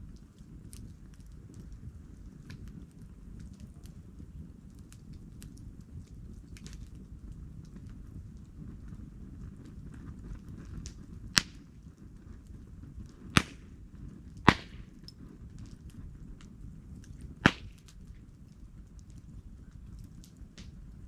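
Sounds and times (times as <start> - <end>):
campfire wood popping: 0.0 - 21.0
low fire rumble: 0.0 - 21.0
small fire crackles: 0.0 - 21.0.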